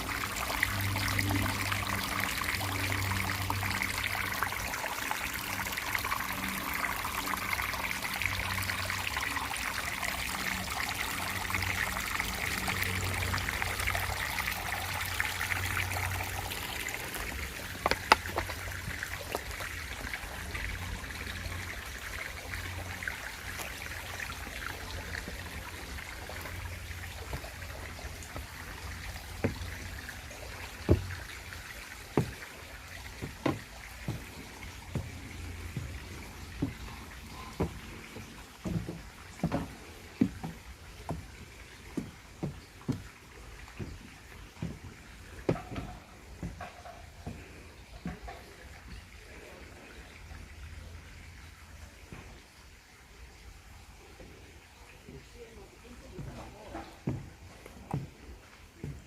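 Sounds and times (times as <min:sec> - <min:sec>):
water trickling: 0:00.0 - 0:59.0.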